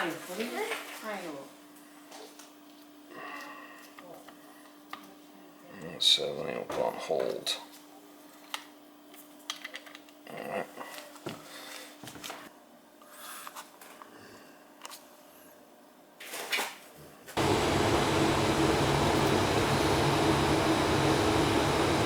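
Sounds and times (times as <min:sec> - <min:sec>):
furnace fan running: 0:17.3 - 0:22.0.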